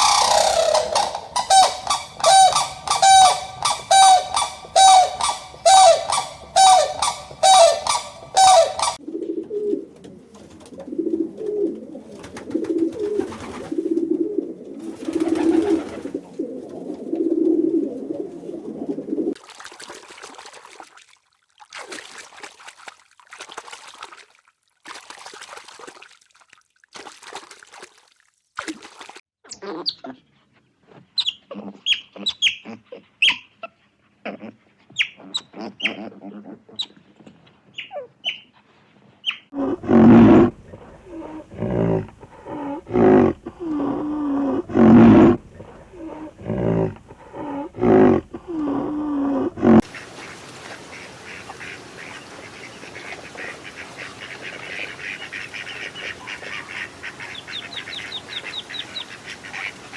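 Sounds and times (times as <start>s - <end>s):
animal calls: 0.0s - 9.0s, 39.3s - 50.0s, 52.6s - 59.9s
high chirps: 0.0s - 9.0s
breathy puffs: 39.6s - 49.8s.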